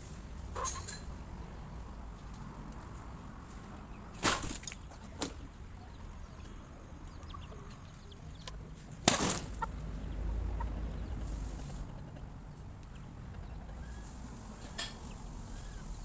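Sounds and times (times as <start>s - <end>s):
chickens clucking: 0.4s - 1.2s, 3.4s - 16.0s
wings flapping: 8.9s - 9.7s
sudden sharp crack: 9.0s - 9.7s.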